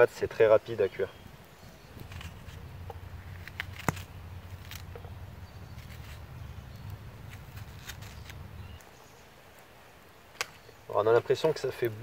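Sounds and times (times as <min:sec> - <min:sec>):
low steady rumble: 0:02.0 - 0:08.8.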